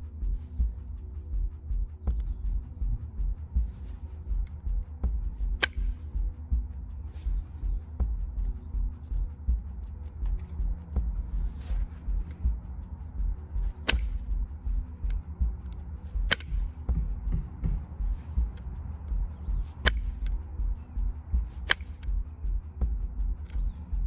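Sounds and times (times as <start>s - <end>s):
music with pulsing low beat: 0.0s - 24.0s.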